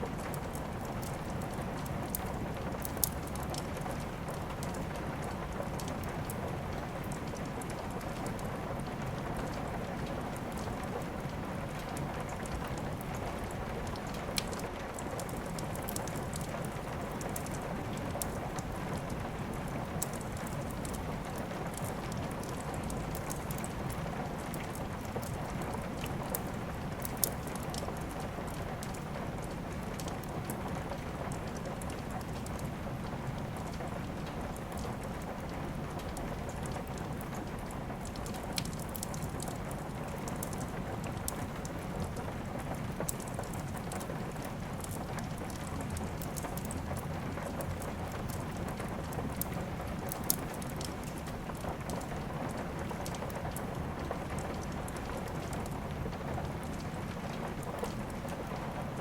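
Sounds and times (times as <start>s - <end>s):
steady rain falling: 0.0s - 59.0s
wood fire crackling: 0.0s - 59.0s.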